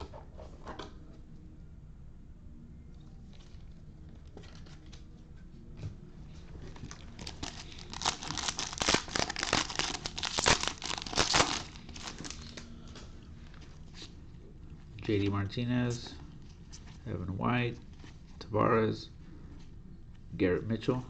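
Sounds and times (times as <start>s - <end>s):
wrapper tearing and crinkling: 6.7s - 12.6s.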